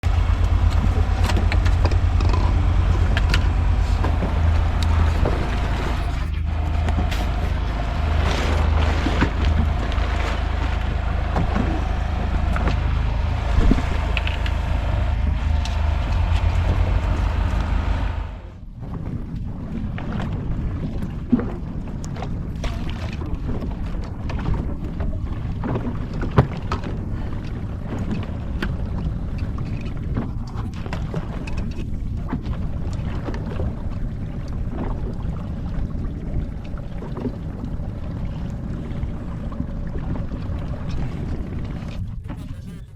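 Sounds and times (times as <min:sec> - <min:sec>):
boat motor running: 0:00.0 - 0:42.9
water sounds: 0:00.0 - 0:42.9
wind on microphone: 0:00.0 - 0:42.9
small knocks and clicks: 0:00.4 - 0:04.2.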